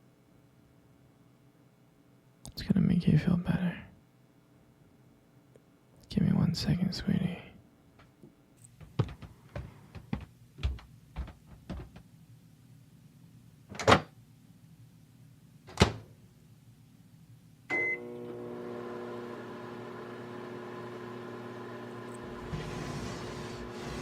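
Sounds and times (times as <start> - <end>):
microwave oven humming: 17.7 - 24.0.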